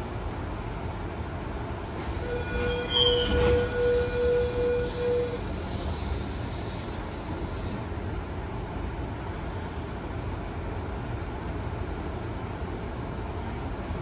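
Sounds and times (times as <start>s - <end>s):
electric train rumbling: 1.2s - 13.4s.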